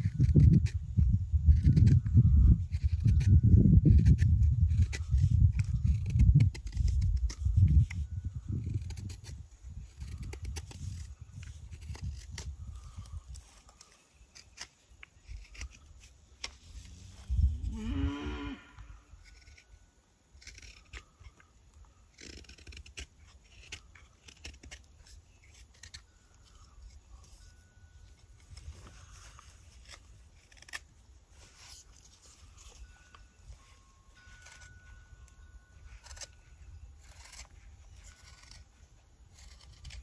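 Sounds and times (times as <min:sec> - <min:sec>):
hand tool scraping wood: 0:28.1 - 0:40.0.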